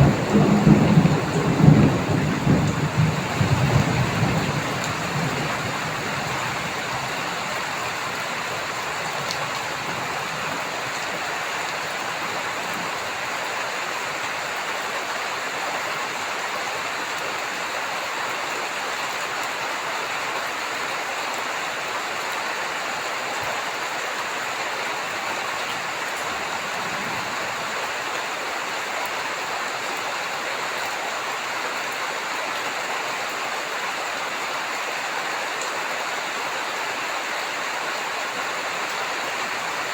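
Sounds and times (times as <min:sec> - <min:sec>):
thunder rumbling: 0:00.0 - 0:08.6
heavy rain falling: 0:00.0 - 0:39.9.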